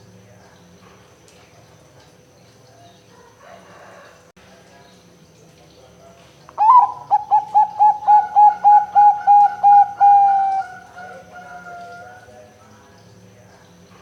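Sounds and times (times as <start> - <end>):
dove cooing: 6.6 - 12.3.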